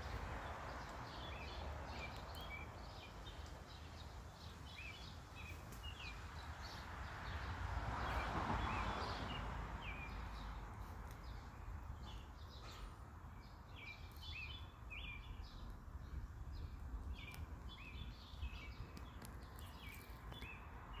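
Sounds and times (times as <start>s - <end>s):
small birds chirping: 0.0s - 21.0s
steady low rumble: 15.0s - 19.6s.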